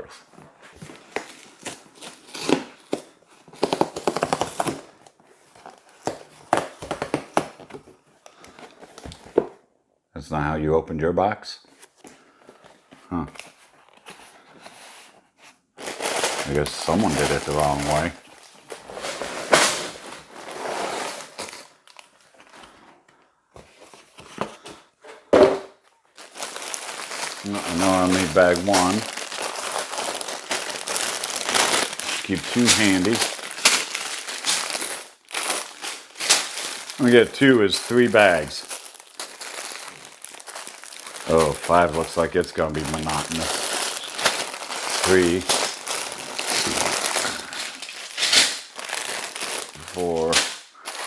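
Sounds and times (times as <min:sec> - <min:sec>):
plastic bags rustling: 0:15.7 - 0:22.8, 0:26.1 - 0:51.0.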